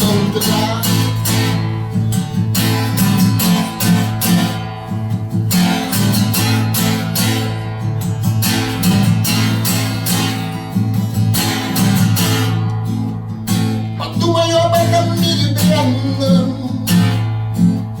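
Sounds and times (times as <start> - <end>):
person singing: 0.0 - 1.4, 14.0 - 17.2
acoustic guitar strumming: 0.0 - 18.0.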